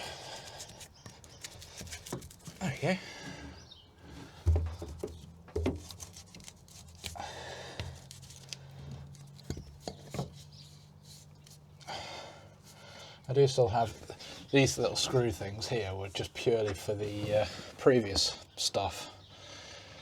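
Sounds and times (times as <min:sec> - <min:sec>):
knocks and thumps: 0:04.3 - 0:05.9.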